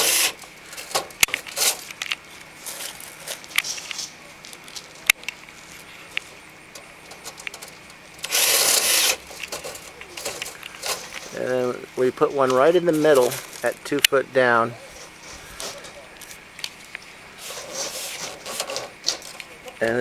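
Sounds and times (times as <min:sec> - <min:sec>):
cordless drill driving screw: 0:00.0 - 0:00.4, 0:08.2 - 0:09.2.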